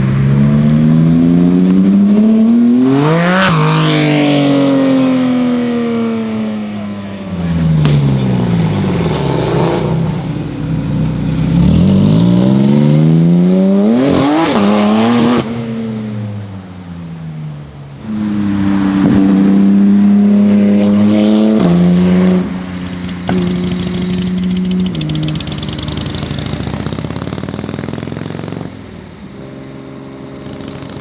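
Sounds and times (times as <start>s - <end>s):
sports car engine revving: 0.0s - 6.5s, 7.2s - 28.9s
exhaust crack: 7.3s - 29.3s, 30.4s - 31.0s.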